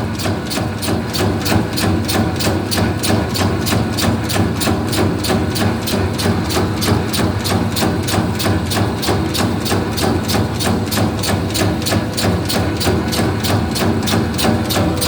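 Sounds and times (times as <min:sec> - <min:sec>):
mechanical clacking: 0:03.3 - 0:15.0
machine motor humming: 0:08.1 - 0:15.0.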